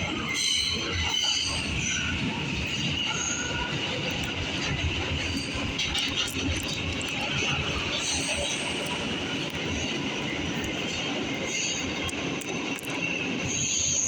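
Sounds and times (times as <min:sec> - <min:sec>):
wheels rumbling on rail: 0:00.0 - 0:14.0.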